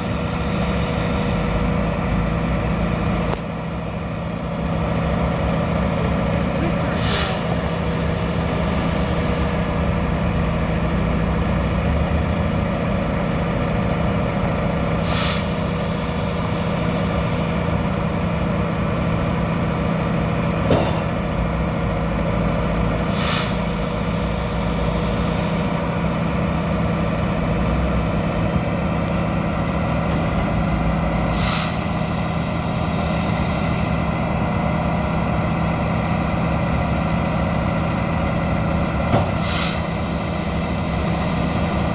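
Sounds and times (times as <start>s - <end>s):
diesel engine running: 0.0s - 41.9s
sharp hiss of air: 6.9s - 9.7s, 15.0s - 17.7s, 23.0s - 25.8s, 31.2s - 34.1s, 39.3s - 41.9s.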